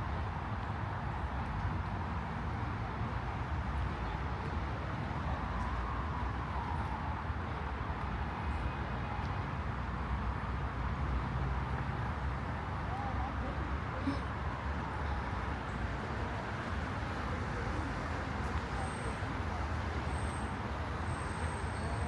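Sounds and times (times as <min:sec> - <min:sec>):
distant city traffic rumble: 0:00.2 - 0:22.0.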